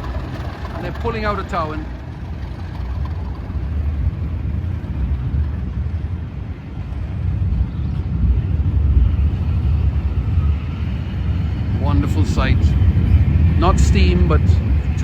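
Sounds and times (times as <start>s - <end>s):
diesel locomotives under power: 0.0s - 15.0s.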